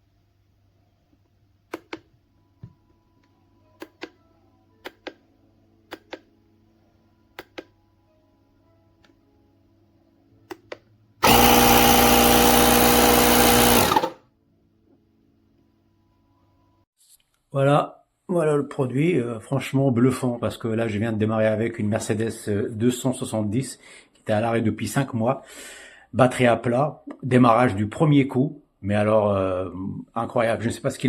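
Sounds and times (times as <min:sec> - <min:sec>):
sharp clicks: 0:10.5 - 0:12.1
electric air compressor humming: 0:11.2 - 0:14.2.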